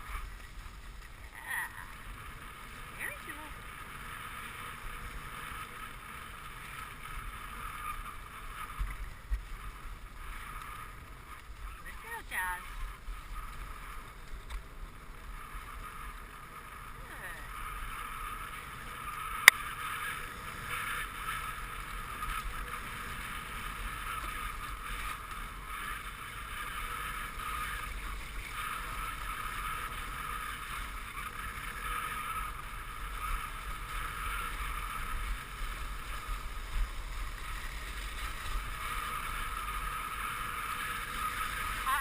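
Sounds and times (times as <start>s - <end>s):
sled runners hissing over snow: 0.0s - 42.0s
wind rumbling on microphone: 0.0s - 42.0s.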